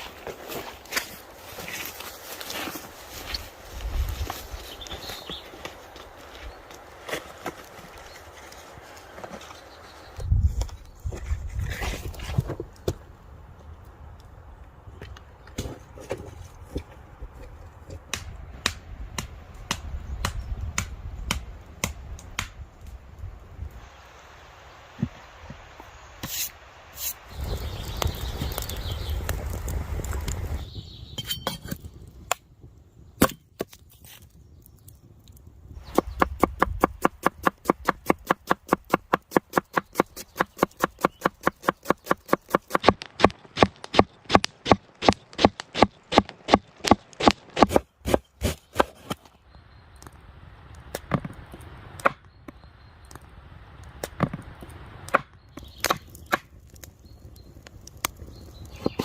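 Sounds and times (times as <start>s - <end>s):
rustling: 0.0s - 12.7s.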